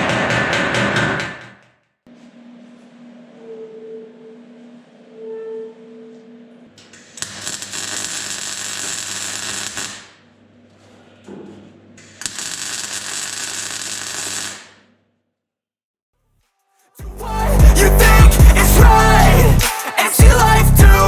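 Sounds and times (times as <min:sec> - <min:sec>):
welding arc crackling: 0:07.0 - 0:10.2, 0:12.1 - 0:14.8.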